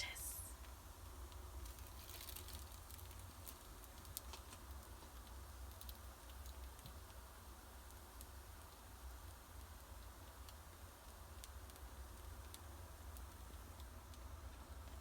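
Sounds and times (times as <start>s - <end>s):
steady low hum: 0.0s - 0.6s
dough sizzling on griddle: 0.0s - 15.0s.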